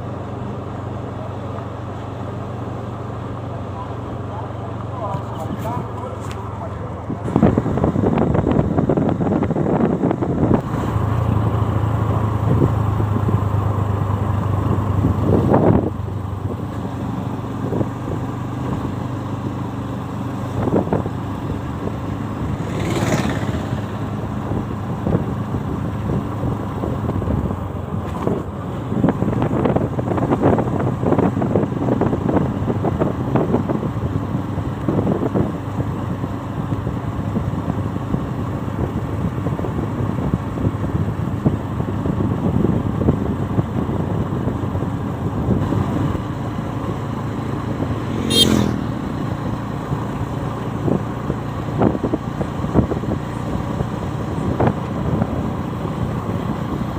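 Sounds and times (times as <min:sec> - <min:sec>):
motorcycle engine running: 0:00.0 - 0:56.9
wind and road noise: 0:00.0 - 0:56.9.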